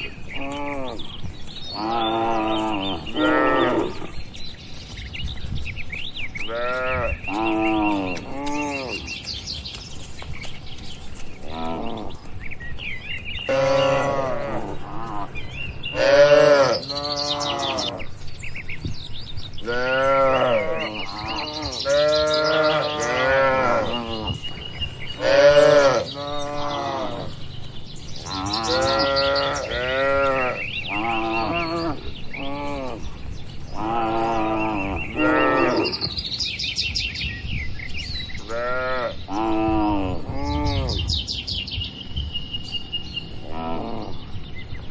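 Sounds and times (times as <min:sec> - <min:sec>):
cattle mooing: 0:01.8 - 0:04.2, 0:13.5 - 0:15.3, 0:15.9 - 0:18.1, 0:19.6 - 0:24.5, 0:25.2 - 0:27.4, 0:28.2 - 0:33.1, 0:33.7 - 0:36.0.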